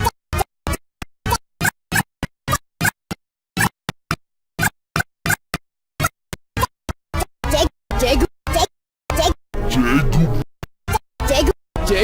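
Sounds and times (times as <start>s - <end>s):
chopped cartoon voice snippets: 7.4s - 12.0s.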